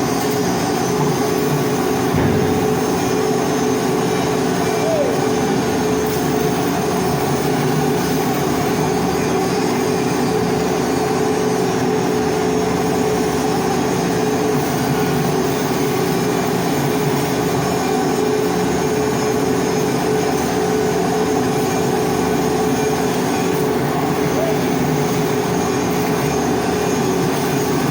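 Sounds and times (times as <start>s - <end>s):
constant hum: 0.0s - 9.5s.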